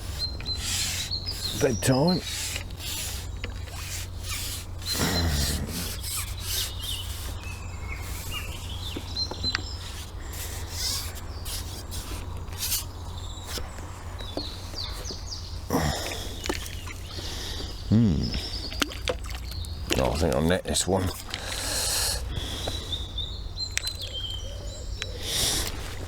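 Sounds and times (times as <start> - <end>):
rustling and rubbing: 0.0 - 15.2
small birds chirping: 0.0 - 26.0.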